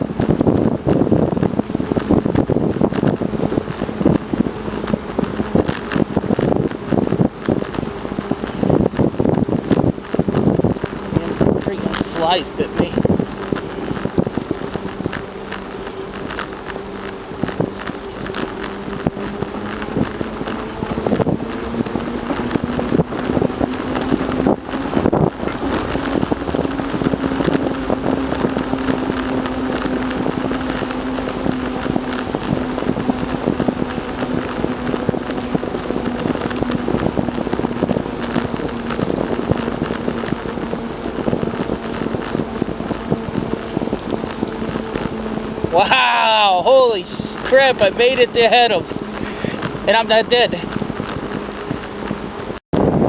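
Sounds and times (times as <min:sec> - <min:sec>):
bicycle tyres rolling: 0:00.0 - 0:53.0
wind buffeting microphone: 0:00.0 - 0:53.0
steady hum: 0:11.0 - 0:51.0.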